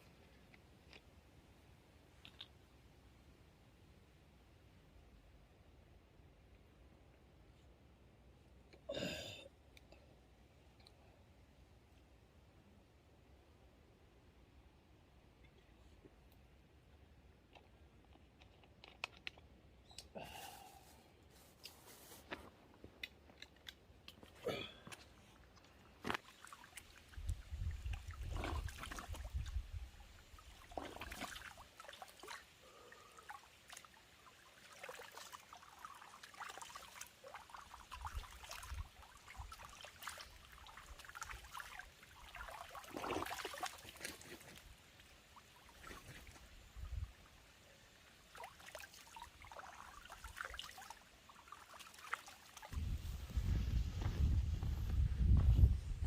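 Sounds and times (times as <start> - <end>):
microphone rumble: 52.8 - 56.0.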